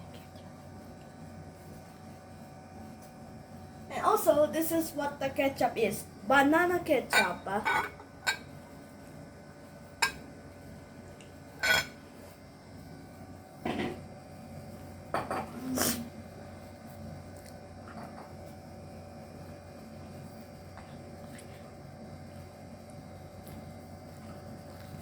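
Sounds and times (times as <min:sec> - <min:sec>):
tableware clinking: 0:07.1 - 0:08.5, 0:11.6 - 0:12.0.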